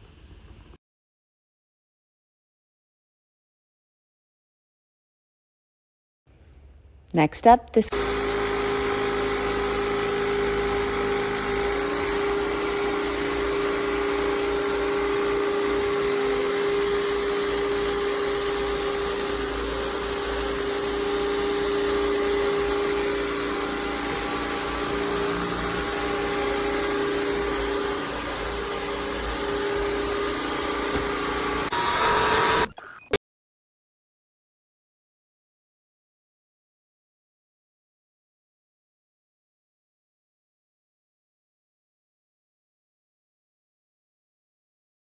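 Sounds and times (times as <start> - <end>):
vacuum cleaner running: 7.8 - 32.8.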